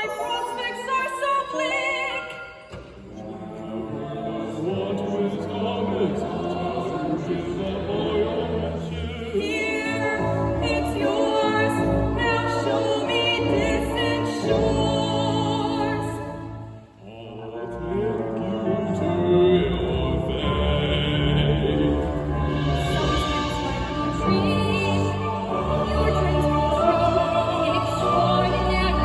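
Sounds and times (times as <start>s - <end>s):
voices singing with vibrato: 0.0s - 29.0s
instrumental accompaniment: 18.0s - 29.0s.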